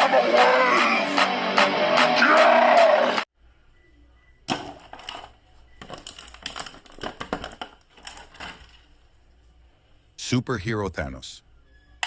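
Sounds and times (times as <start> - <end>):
plastic toy and packaging clicks: 4.7 - 8.8.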